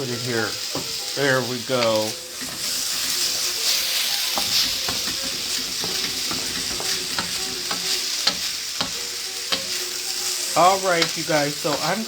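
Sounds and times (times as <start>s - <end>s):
food sizzling in a pan: 0.0s - 12.0s
utensil clicking against pan: 1.7s - 3.4s, 4.3s - 9.9s, 10.9s - 12.0s.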